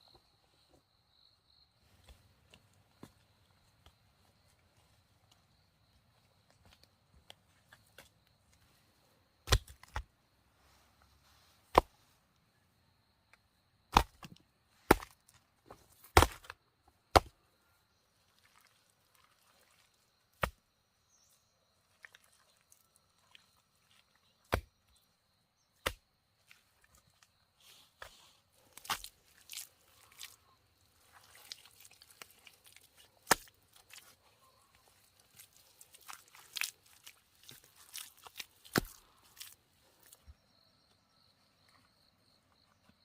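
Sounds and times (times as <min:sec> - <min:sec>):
wood chopping strikes: 0:09.4 - 0:10.1, 0:11.7 - 0:11.9, 0:13.9 - 0:15.2, 0:16.0 - 0:17.4, 0:20.4 - 0:20.6, 0:24.5 - 0:24.8, 0:25.8 - 0:26.0, 0:33.2 - 0:33.5, 0:38.7 - 0:39.5.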